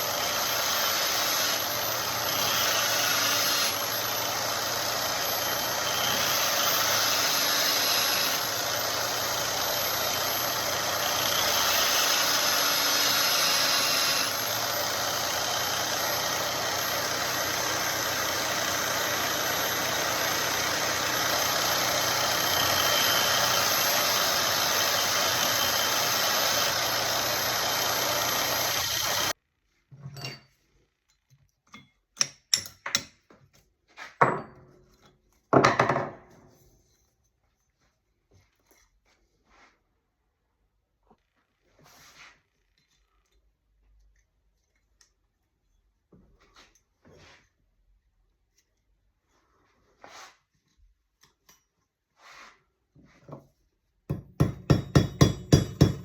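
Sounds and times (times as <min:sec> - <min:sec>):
belt grinder hissing and whining: 0:00.0 - 0:29.4.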